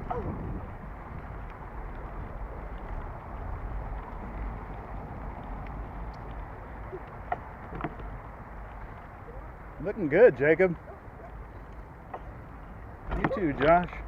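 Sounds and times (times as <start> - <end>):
wind on microphone: 0.0 - 9.8
bicycle tyres rolling on dirt: 0.0 - 14.0
faint ticks: 1.2 - 9.2.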